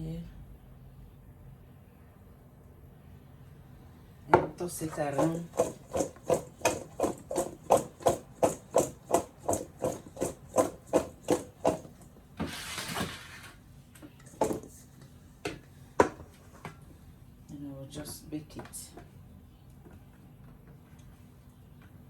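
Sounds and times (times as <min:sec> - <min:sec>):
potato wedges knocking in bowl: 0:04.4 - 0:12.0.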